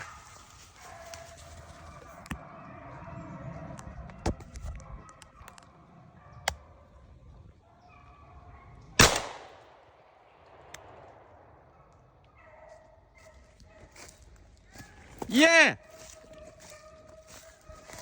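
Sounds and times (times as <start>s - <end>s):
shotgun shot with echo: 9.0s - 11.6s.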